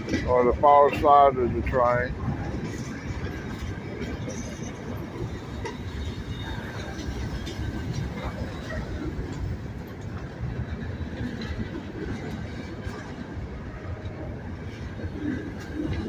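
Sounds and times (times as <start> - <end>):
steel wheels rumbling on rail: 0.0 - 16.0.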